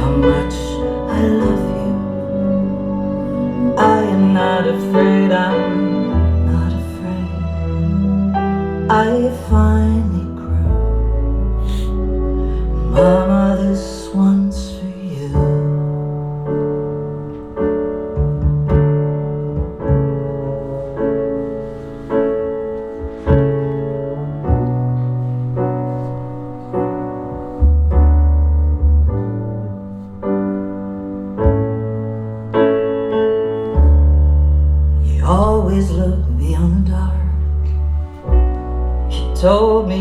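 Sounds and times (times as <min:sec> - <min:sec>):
low bass notes: 0:00.0 - 0:40.0
piano chords: 0:00.0 - 0:40.0.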